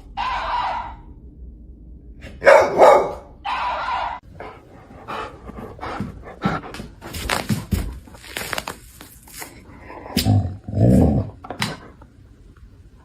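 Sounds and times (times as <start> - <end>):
dog barking loudly: 2.4 - 4.2
rustling: 5.3 - 9.7.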